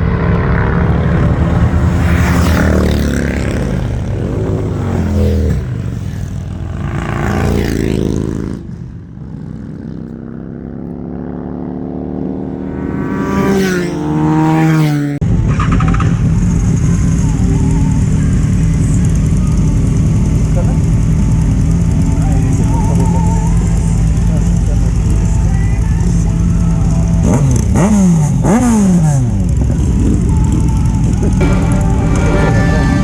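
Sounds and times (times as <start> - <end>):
motorcycle engine shifting gears: 0.0 - 17.2.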